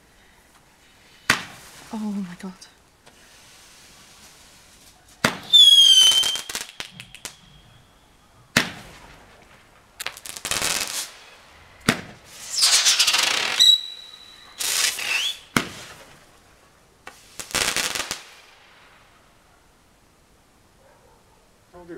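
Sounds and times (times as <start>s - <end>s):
firework hissing and whistling: 0.7s - 2.1s, 3.1s - 16.4s, 17.0s - 19.2s
firework launch reports: 1.1s - 19.3s.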